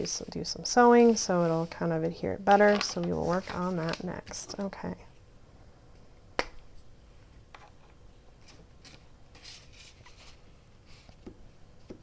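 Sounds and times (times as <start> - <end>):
soft scraping strokes: 0.8 - 2.0
paper rustling on a tabletop: 0.8 - 4.6, 7.6 - 11.3.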